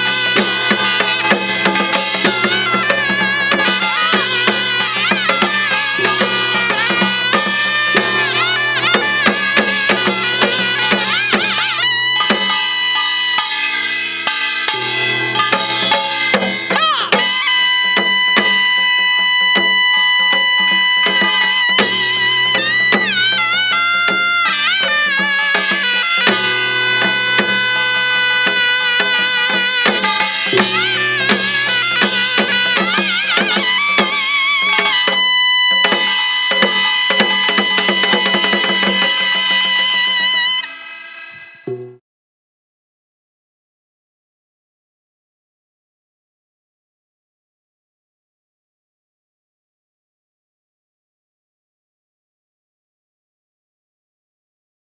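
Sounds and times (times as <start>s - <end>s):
held wind instrument melody: 0.0s - 42.0s
hourglass drum strokes: 0.0s - 42.0s.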